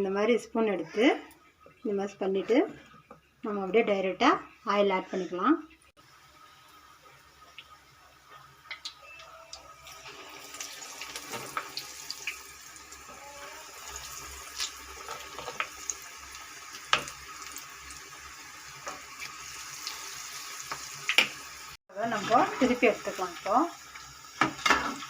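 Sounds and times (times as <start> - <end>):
batter frying in hot oil: 5.8 - 25.0
oil crackling and popping: 6.0 - 21.8, 22.4 - 25.0.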